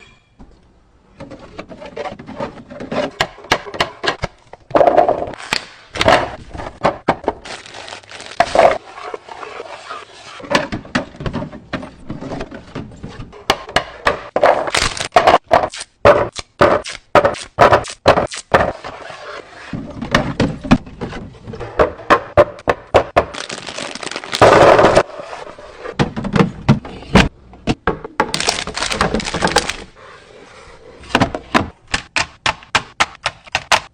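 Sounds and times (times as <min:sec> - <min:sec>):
plastic items clicking and scraping: 0:23.3 - 0:25.1, 0:28.3 - 0:29.9.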